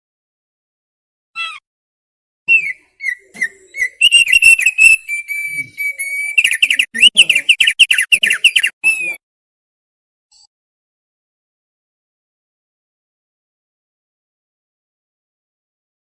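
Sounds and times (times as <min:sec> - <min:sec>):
bird singing whistled notes: 0:02.5 - 0:09.2.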